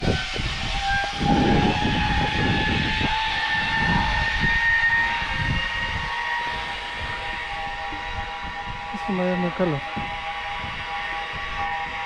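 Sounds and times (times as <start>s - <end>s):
pulleys whining on cable: 0.0s - 12.0s
wind buffeting microphone: 0.0s - 12.0s.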